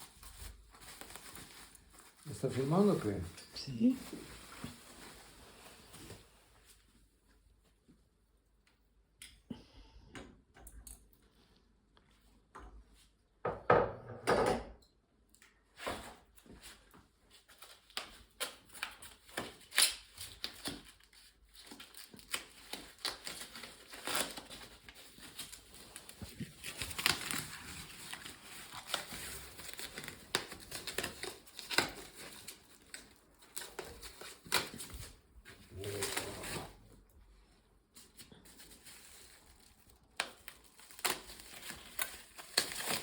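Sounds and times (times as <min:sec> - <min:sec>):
packing material crinkling: 0:00.0 - 0:06.9, 0:16.6 - 0:37.0, 0:38.0 - 0:43.0.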